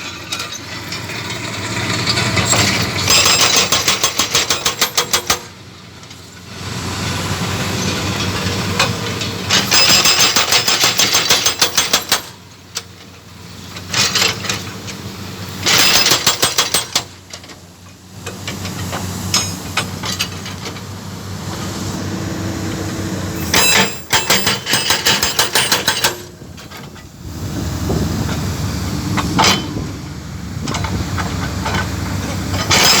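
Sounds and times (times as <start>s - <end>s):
diesel engine running: 0.0s - 4.6s, 5.4s - 11.6s, 12.2s - 33.0s
hydraulic breaker hammering concrete: 2.6s - 5.6s, 9.6s - 12.4s, 15.6s - 17.2s, 23.4s - 26.4s, 32.6s - 33.0s.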